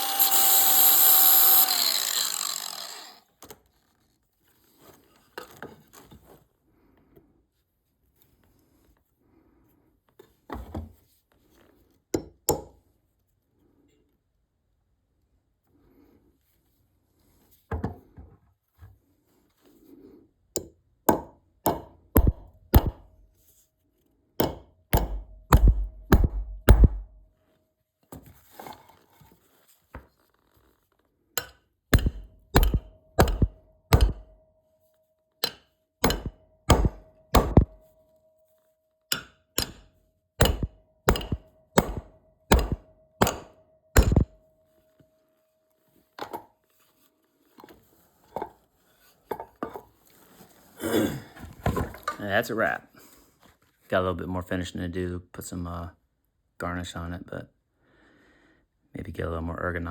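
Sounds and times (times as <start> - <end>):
sharp blows on wood: 21.7 - 23.1, 24.4 - 27.2, 32.0 - 34.3, 36.0 - 37.8, 39.6 - 44.3.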